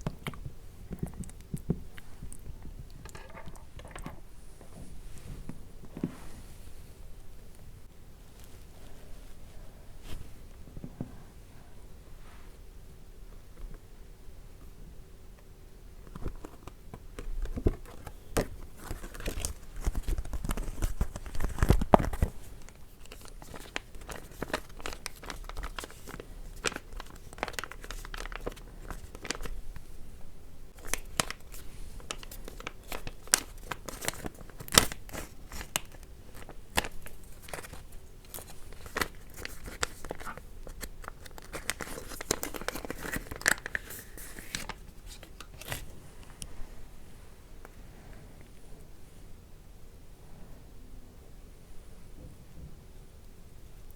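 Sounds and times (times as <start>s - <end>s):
foil packet tearing and crinkling: 17.4s - 29.6s, 30.8s - 45.9s.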